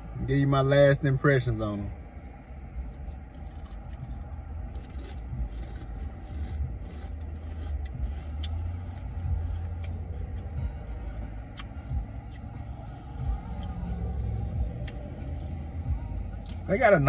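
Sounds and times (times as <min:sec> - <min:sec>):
steady low rumble: 0:00.0 - 0:17.0
chewing crunchy crisps: 0:02.9 - 0:10.5.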